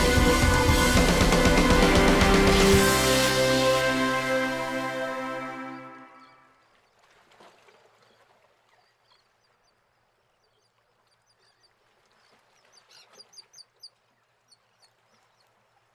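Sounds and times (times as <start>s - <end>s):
music: 0.0s - 6.5s.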